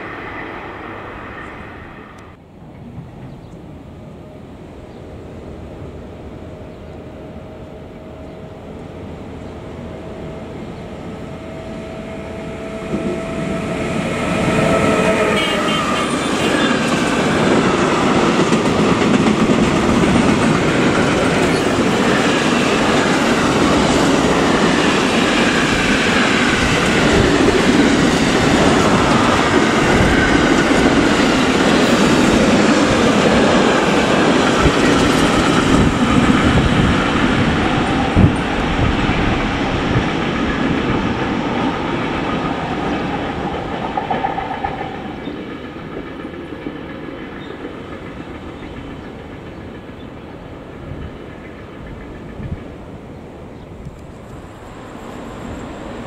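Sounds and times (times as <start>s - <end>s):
locomotive whine: 0.0s - 56.0s
wheels clacking over rail joints: 12.8s - 56.0s.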